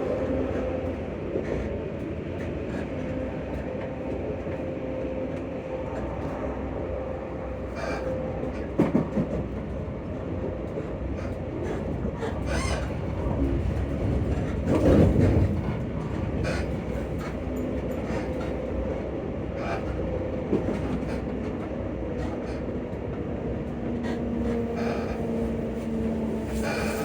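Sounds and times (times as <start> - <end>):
train wheels rumbling on track: 0.0 - 27.0
train bump: 7.8 - 9.8, 23.6 - 27.0
rail clicks: 7.8 - 27.0.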